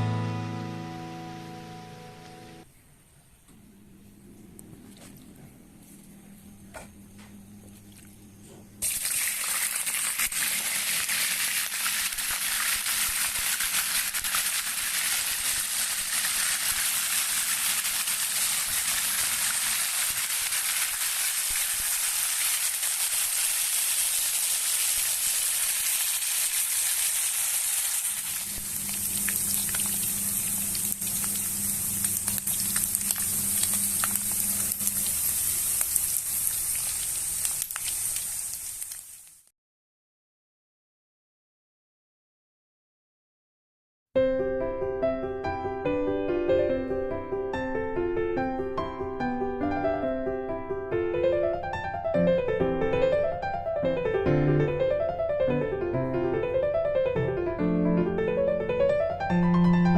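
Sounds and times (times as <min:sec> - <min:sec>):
frying in hot oil: 0:08.8 - 0:39.5.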